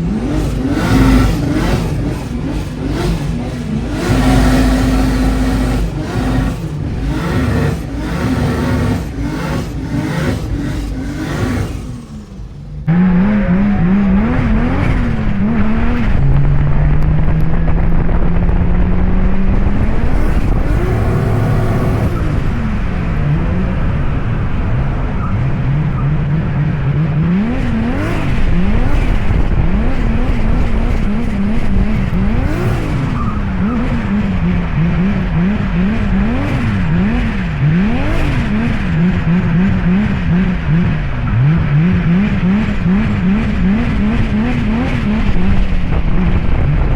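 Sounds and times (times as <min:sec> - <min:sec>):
turbocharged engine revving: 0:00.0 - 0:46.9
tyre and road noise: 0:00.0 - 0:46.9.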